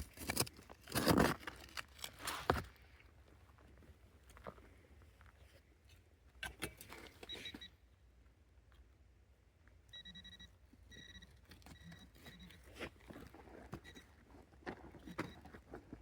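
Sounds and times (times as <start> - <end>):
metal detector beeping: 7.2 - 7.8, 9.9 - 12.8, 13.8 - 14.1, 15.0 - 15.5.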